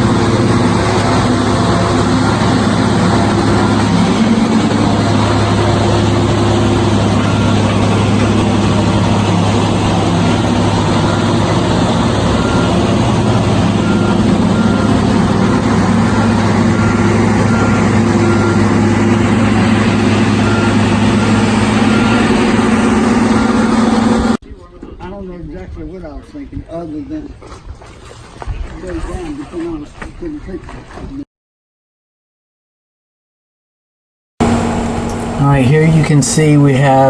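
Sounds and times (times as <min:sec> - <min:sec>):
heavy engine humming: 0:00.0 - 0:24.4, 0:34.4 - 0:37.0.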